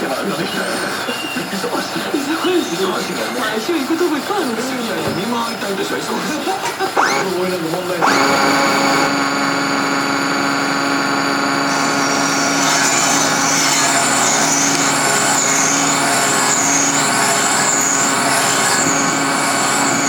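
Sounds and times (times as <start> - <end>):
electric machine tool whining: 4.2 - 20.0.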